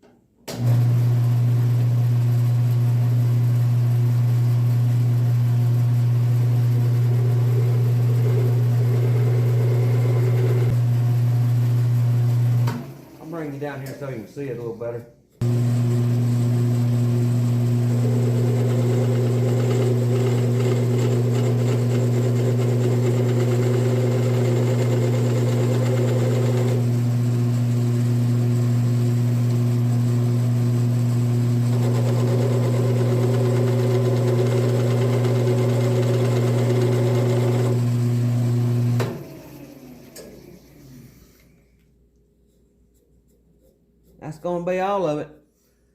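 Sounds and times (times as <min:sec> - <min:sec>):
wood lathe motor humming: 0:06.5 - 0:10.8, 0:15.4 - 0:28.7, 0:29.4 - 0:41.0
turning knife scraping wood: 0:42.5 - 0:44.6.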